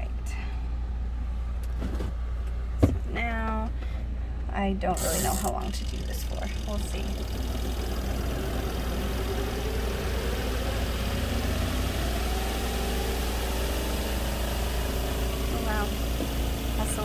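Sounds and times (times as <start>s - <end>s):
spin-dryer motor whining: 4.8s - 17.0s.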